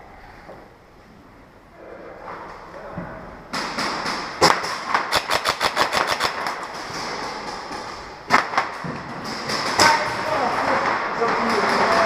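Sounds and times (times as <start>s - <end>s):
airsoft gun shots: 3.6s - 6.8s.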